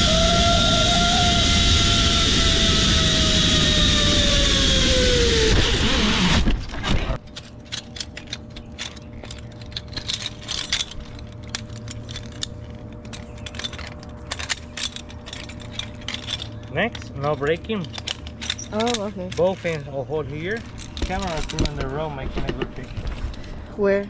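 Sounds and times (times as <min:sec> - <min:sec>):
zip line trolley whine: 0:00.0 - 0:06.7
metal harness gear clinking: 0:07.2 - 0:23.6.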